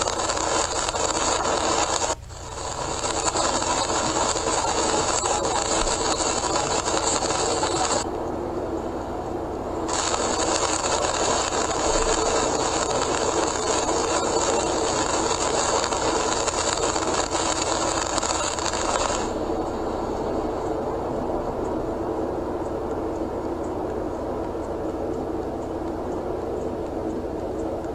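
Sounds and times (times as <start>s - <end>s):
road and tyre noise: 14.8s - 27.9s.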